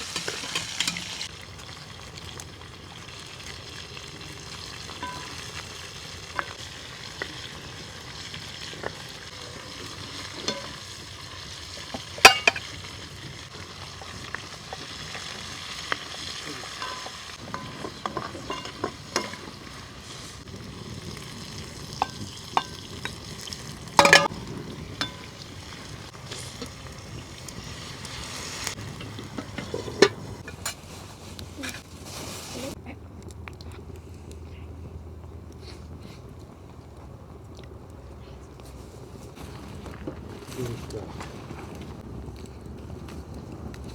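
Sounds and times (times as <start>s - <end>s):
utensil stirring food: 0.0s - 1.3s, 4.4s - 20.5s, 21.4s - 32.8s
food sizzling in a pan: 0.0s - 32.8s
utensil knocking on pan: 12.3s - 12.6s, 24.0s - 24.3s.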